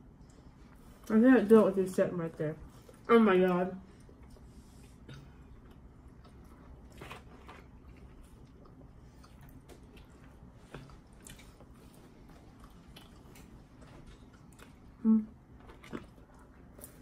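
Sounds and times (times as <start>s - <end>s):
chewing and biting: 4.0s - 17.0s.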